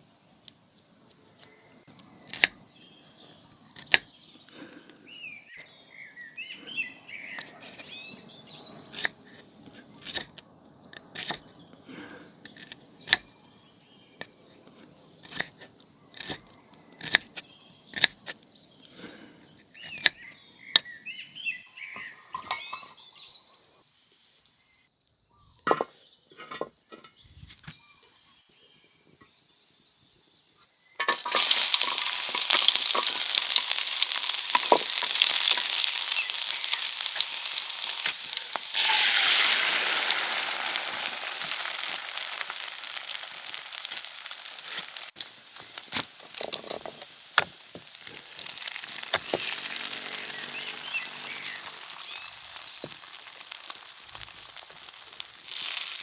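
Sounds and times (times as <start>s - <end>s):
food sizzling in hot oil: 31.0s - 56.0s.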